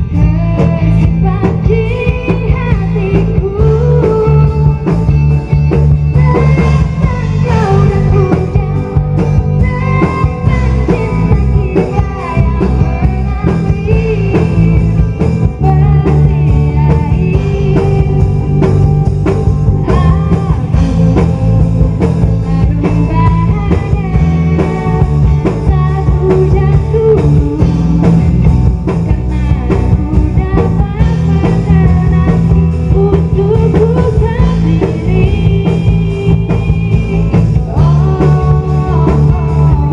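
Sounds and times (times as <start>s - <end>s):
rock band music with singing: 0.0s - 39.9s.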